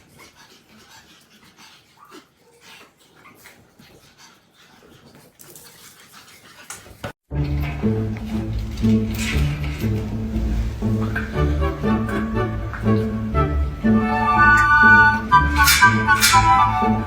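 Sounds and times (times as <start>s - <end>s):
dog breathing and vocalizing: 0.0s - 7.2s, 8.0s - 17.0s
loud music: 10.5s - 17.0s.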